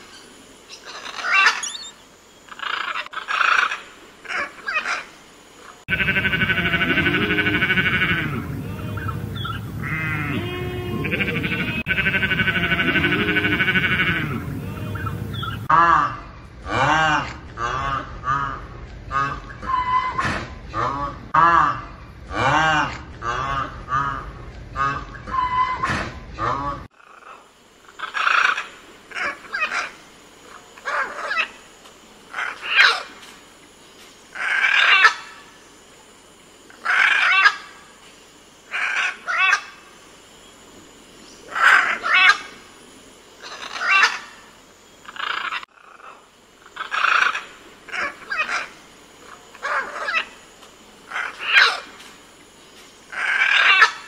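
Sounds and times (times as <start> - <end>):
macaw squawking: 0.7 - 5.1, 5.9 - 16.2, 16.8 - 22.5, 28.0 - 31.6, 32.3 - 33.1, 34.4 - 35.4, 36.8 - 37.8, 38.7 - 39.8, 41.5 - 42.6, 43.4 - 44.4, 45.0 - 48.8, 49.5 - 50.4, 51.1 - 52.0, 53.1 - 54.0.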